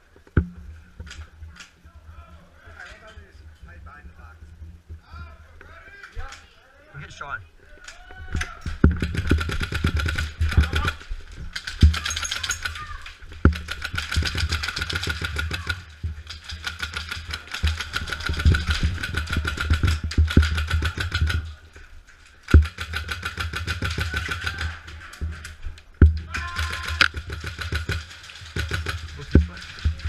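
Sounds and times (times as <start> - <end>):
rapid airsoft rifle fire: 8.7 - 21.6, 22.4 - 25.4, 26.1 - 30.0.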